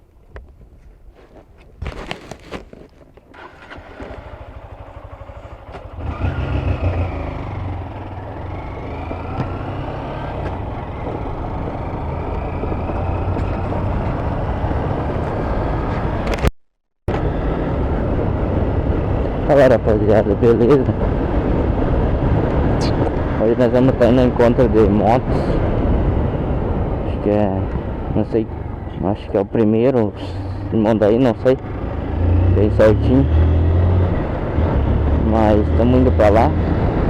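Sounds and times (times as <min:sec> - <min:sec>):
motorcycle engine running: 0:03.4 - 0:16.4
wind rush: 0:17.1 - 0:30.8.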